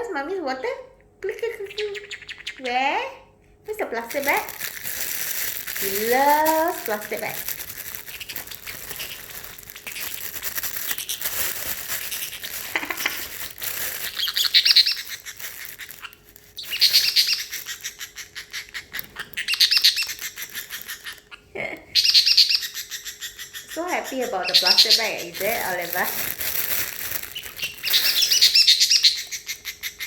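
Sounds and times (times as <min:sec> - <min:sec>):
parrotlet chattering high chirps: 0:01.6 - 0:03.0, 0:04.1 - 0:30.0
plastic bag rustling: 0:04.0 - 0:17.9, 0:18.9 - 0:21.2, 0:24.6 - 0:28.8.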